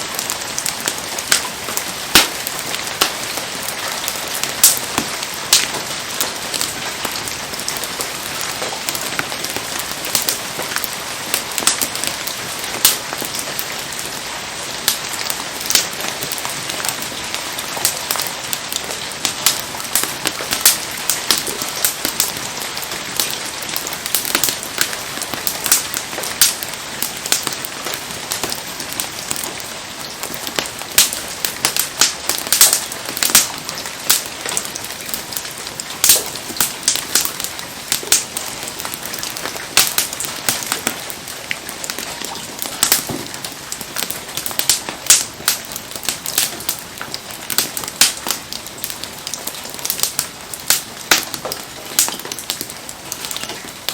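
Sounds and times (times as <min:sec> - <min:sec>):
campfire crackles and pops: 0:00.0 - 0:53.9
rain hiss: 0:00.0 - 0:53.9.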